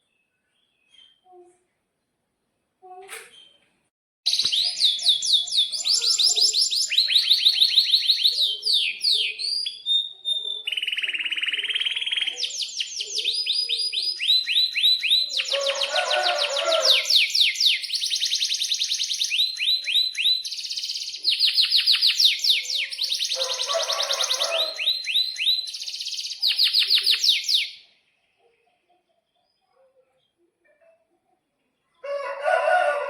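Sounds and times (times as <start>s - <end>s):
canary singing trills: 4.3s - 27.9s.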